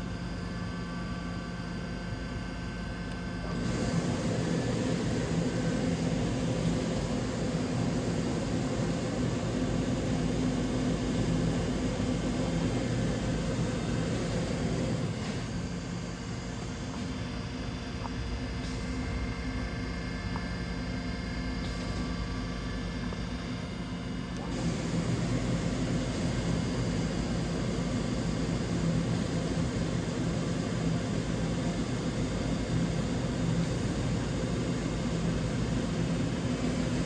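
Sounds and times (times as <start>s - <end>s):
machining center droning: 0.0s - 37.0s.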